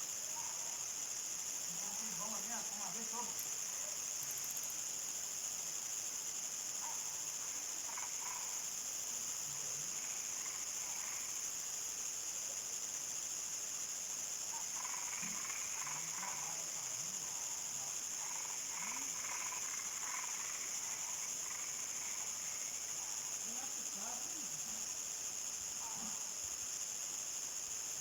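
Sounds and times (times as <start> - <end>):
crickets trilling: 0.0 - 28.0
frogs calling: 6.8 - 8.8, 9.9 - 11.5, 14.5 - 24.6.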